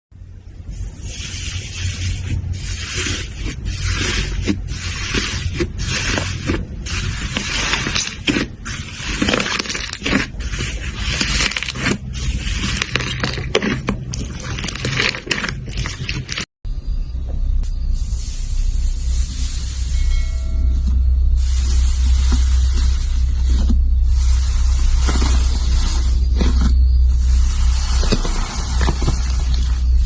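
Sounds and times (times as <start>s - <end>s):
low steady hum: 0.1s - 30.0s
hands squishing slime: 1.1s - 16.4s.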